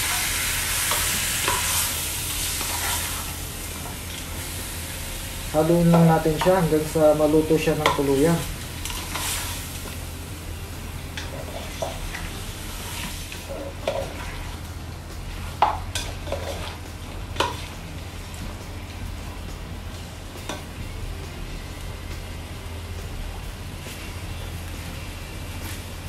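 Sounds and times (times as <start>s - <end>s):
chicken sizzling in oil: 0.0s - 19.4s
steady low hum: 0.0s - 26.0s
spatula scraping and knocking pot: 13.4s - 14.5s, 15.4s - 16.8s.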